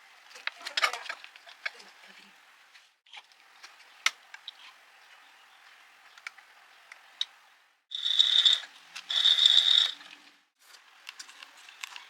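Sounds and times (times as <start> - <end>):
small electric motor whining: 7.9 - 10.0
small parts clicking: 8.0 - 10.0.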